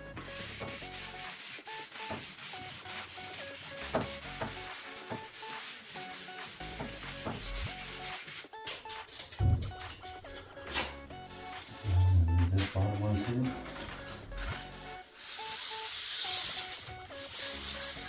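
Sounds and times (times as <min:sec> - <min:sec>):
sandpaper rubbing on wood: 0:00.4 - 0:09.9, 0:10.7 - 0:18.0.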